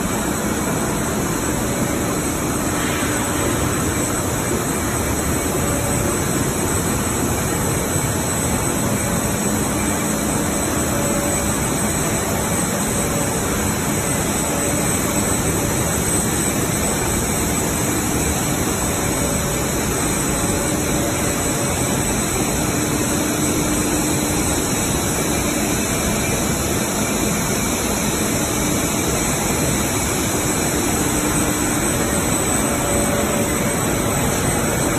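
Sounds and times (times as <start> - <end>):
washing machine humming and hissing: 0.0 - 34.9.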